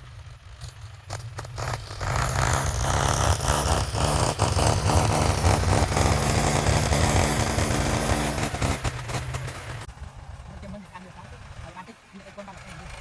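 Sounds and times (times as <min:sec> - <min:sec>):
heavy machine engine running: 0:00.9 - 0:09.9.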